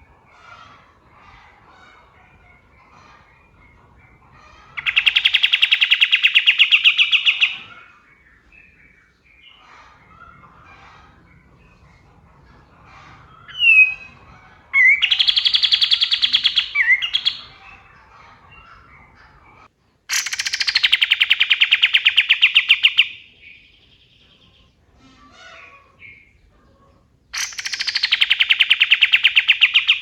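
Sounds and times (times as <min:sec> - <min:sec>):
bird singing rapid trills: 0:27.4 - 0:30.0.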